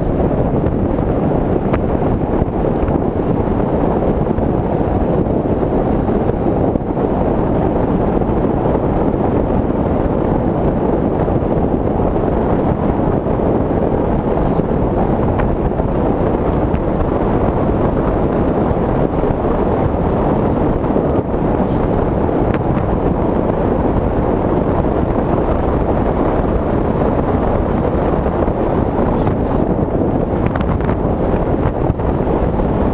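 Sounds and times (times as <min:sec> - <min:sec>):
wind rushing over microphone: 0:00.0 - 0:32.9
electric motor noise: 0:14.2 - 0:23.9.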